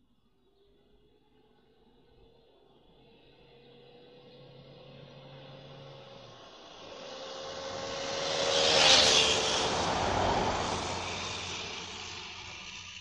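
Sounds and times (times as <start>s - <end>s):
electric motorbike whine passing: 3.4s - 13.0s.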